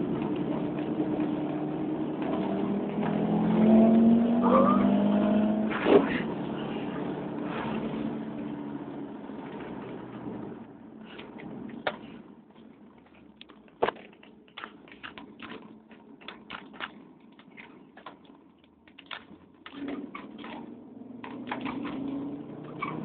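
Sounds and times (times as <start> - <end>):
car engine running: 0.0 - 23.0
sharp clicks and rattles: 12.6 - 22.2.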